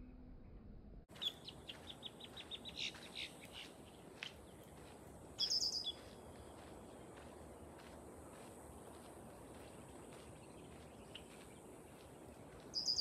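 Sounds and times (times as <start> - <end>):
small bird chirping: 1.1 - 7.3, 9.6 - 13.0.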